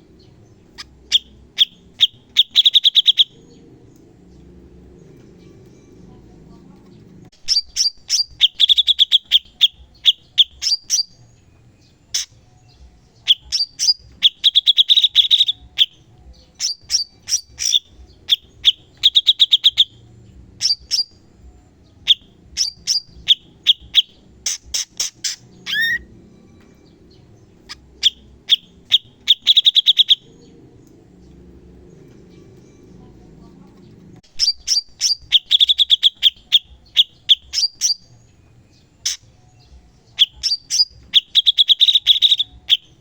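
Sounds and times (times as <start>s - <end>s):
bulbul chirping and trilling: 0.2s - 4.4s, 7.3s - 11.2s, 12.0s - 12.4s, 13.2s - 21.2s, 21.9s - 26.1s, 27.1s - 31.4s, 34.2s - 43.0s.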